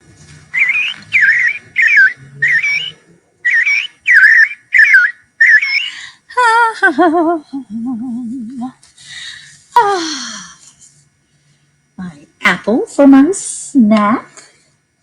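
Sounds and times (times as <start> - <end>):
bird-like whistled chirps: 0.6 - 6.0.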